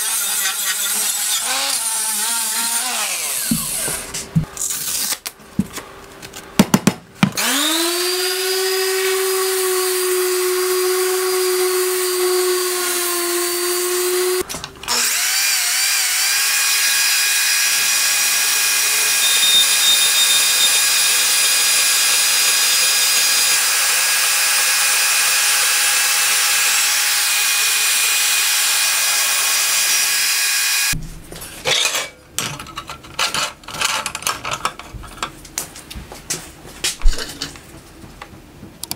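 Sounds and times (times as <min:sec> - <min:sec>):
band saw cutting steel: 0:00.0 - 0:05.1, 0:07.4 - 0:31.0
orbital sander running: 0:07.4 - 0:14.4.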